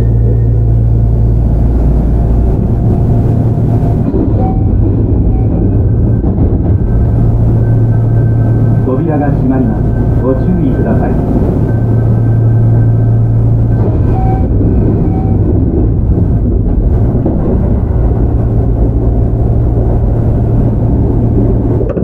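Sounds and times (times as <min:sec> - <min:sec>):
low hum: 0:00.0 - 0:22.0
train wheels rumbling on rails: 0:00.0 - 0:22.0.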